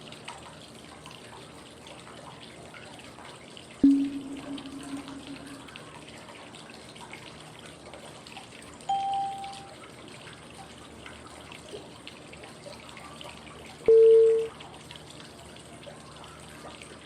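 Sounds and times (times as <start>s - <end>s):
pure beep tone: 3.8s - 5.6s, 8.9s - 9.7s, 13.9s - 14.5s.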